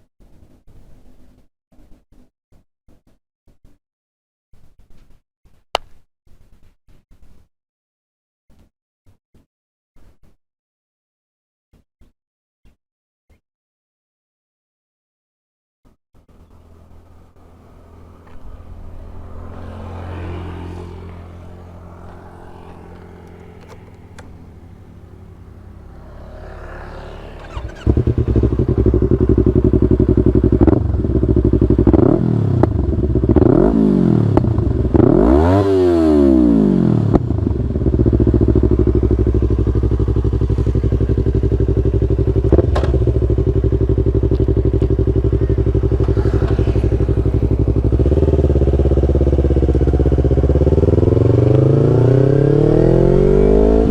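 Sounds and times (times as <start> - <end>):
motorcycle engine revving and idling: 16.2 - 53.9
clicks: 22.9 - 24.4.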